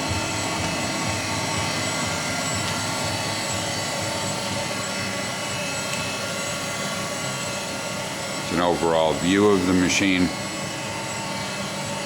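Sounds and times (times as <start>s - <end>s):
machinery motors humming: 0.0s - 12.0s.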